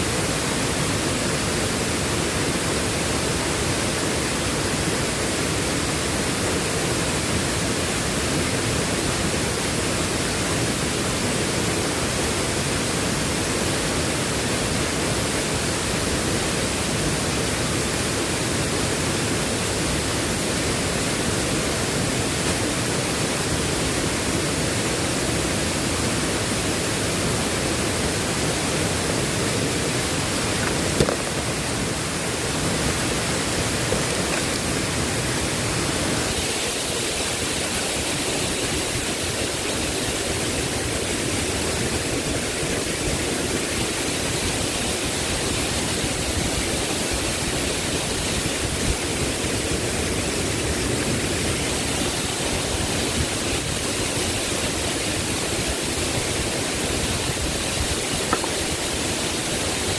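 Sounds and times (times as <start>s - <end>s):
rushing water: 0.0s - 59.9s.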